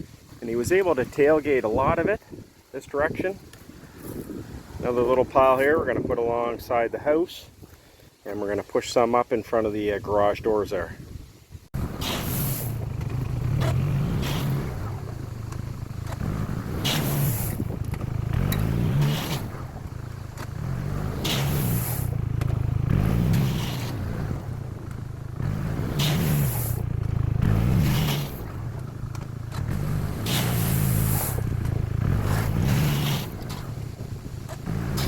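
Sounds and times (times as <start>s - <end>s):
gravel scraping: 0.0s - 11.1s, 11.7s - 35.0s
atv engine revving: 11.8s - 35.0s.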